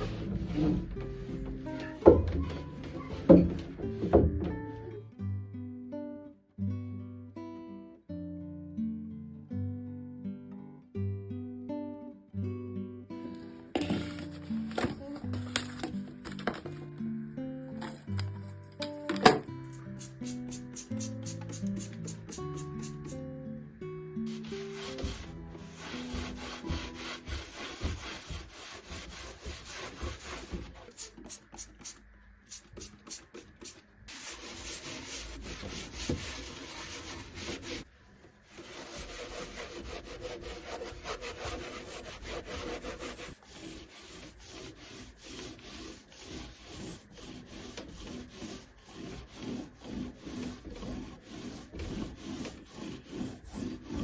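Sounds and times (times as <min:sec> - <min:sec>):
hand sanding wood: 0:19.8 - 0:23.2, 0:24.3 - 0:54.0.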